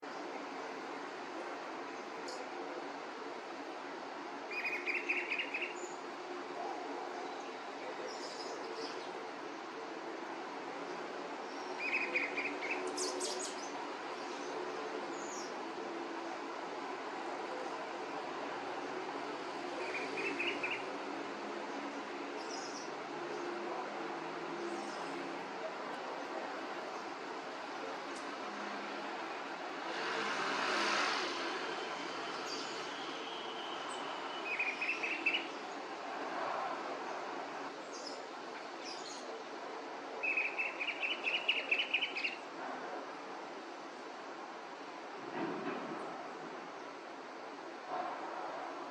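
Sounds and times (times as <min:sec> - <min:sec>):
vehicle passing: 0:29.8 - 0:32.7.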